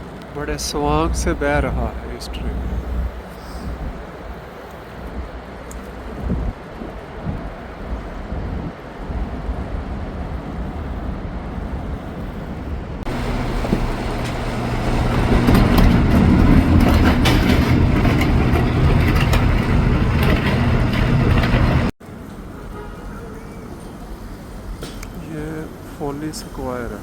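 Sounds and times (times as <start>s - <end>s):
train car rattling: 0.0s - 9.0s, 13.0s - 27.0s
subway train rumbling: 0.0s - 27.0s.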